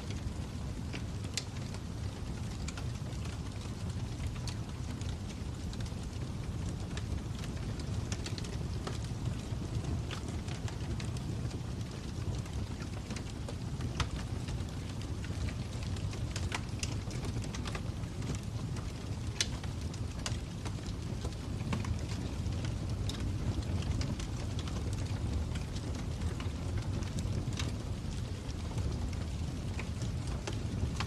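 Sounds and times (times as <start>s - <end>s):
fire crackling and popping: 0.0s - 31.0s.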